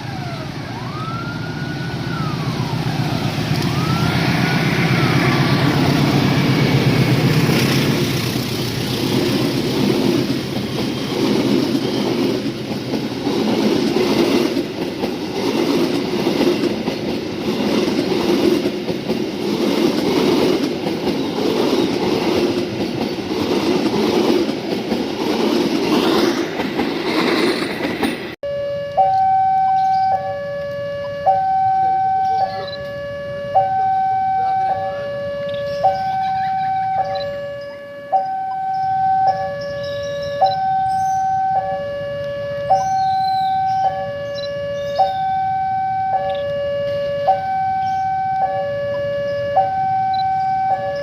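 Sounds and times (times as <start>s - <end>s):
train rumble and wheel clatter: 0.0s - 28.4s, 39.1s - 51.0s
electronic two-tone alarm: 28.4s - 51.0s.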